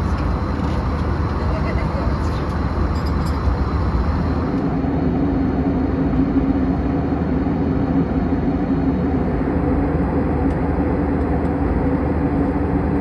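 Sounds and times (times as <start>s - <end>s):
steady cabin hum: 0.0s - 5.3s
low rumble of engines and airflow: 0.0s - 13.0s.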